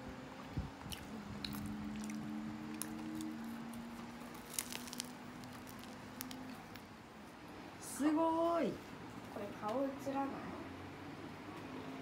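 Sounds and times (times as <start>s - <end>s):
crunching and chewing batter: 0.6s - 6.9s.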